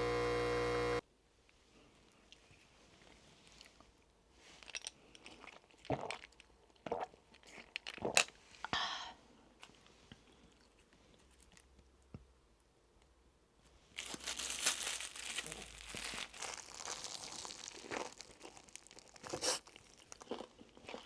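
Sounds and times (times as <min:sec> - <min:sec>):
crunchy food being chewed: 0:04.6 - 0:08.4, 0:14.0 - 0:21.0.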